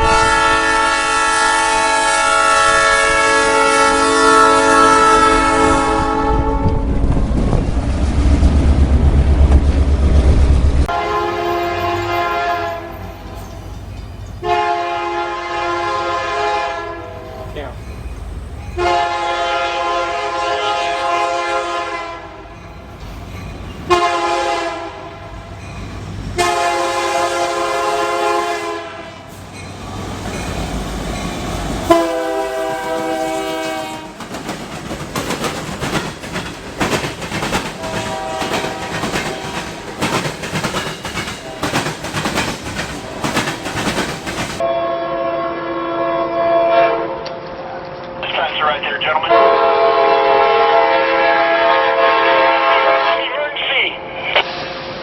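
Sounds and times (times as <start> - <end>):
locomotive air horn blasts: 0.0 - 7.1, 10.9 - 13.2, 14.4 - 17.6, 18.8 - 22.5, 23.9 - 25.4, 26.4 - 29.2, 31.9 - 34.2, 37.8 - 39.7, 44.6 - 47.4, 49.2 - 53.4.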